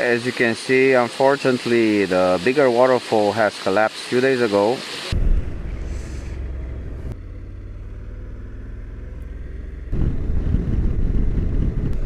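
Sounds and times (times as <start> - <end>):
motorcycle engine running: 5.1 - 12.0.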